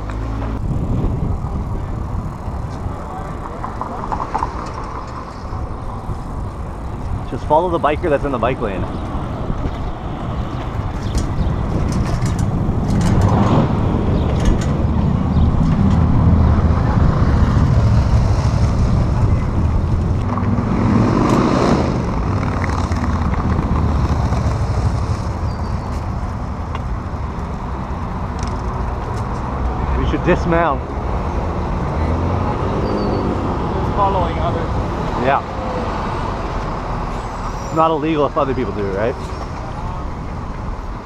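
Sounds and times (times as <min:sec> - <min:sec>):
road traffic rumble: 0:00.0 - 0:41.0
vehicles passing by: 0:00.0 - 0:41.0.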